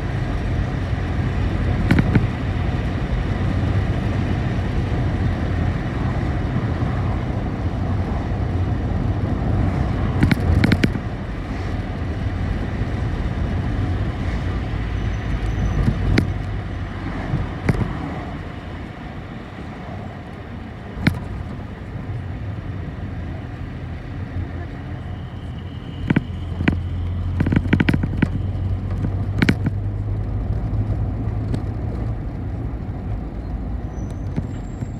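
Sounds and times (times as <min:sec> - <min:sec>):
bus engine and road rumble: 0:00.0 - 0:34.9
rattles: 0:01.6 - 0:02.9, 0:09.8 - 0:11.1, 0:14.0 - 0:22.3, 0:23.1 - 0:32.9
sharp knocks: 0:01.8 - 0:02.4, 0:17.3 - 0:18.1, 0:26.0 - 0:29.8.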